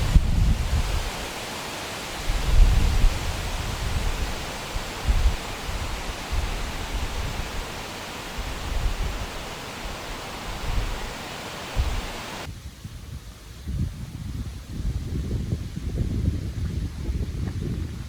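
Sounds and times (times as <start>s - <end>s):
steady broad hiss: 0.0s - 12.5s
wind buffeting microphone: 0.0s - 18.0s.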